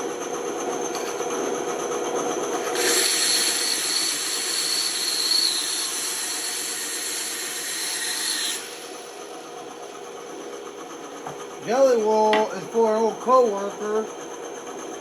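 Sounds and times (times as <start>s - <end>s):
band saw running: 0.0s - 15.0s
band saw cutting wood: 2.6s - 9.1s.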